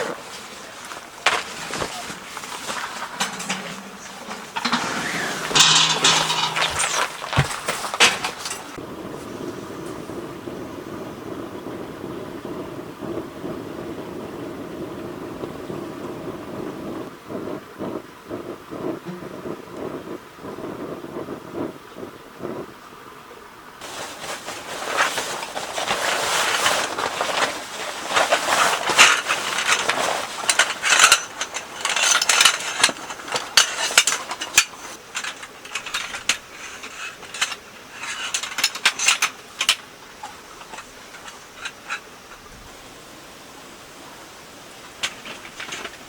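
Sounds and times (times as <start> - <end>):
objects rustling and clicking: 0.0 - 8.8, 23.8 - 42.5, 44.9 - 46.0.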